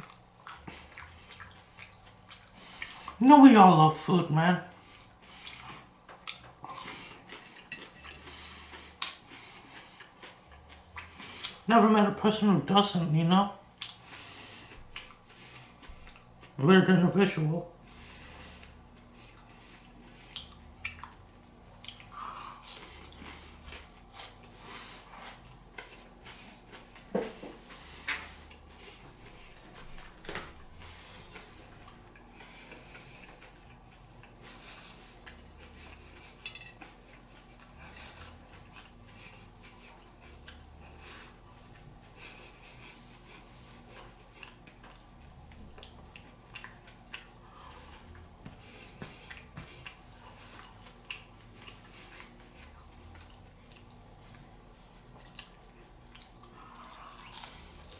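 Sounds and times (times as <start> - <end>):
dishes and cutlery clinking: 36.4 - 36.9.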